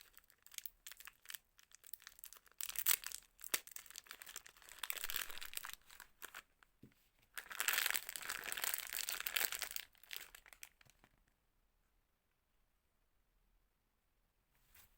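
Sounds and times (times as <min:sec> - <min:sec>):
packaging crinkling and tearing: 0:00.0 - 0:06.5, 0:07.3 - 0:11.1.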